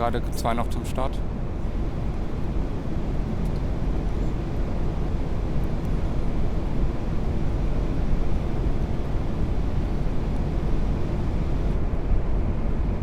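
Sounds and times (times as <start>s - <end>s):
airflow and engine rumble: 0.0s - 13.0s.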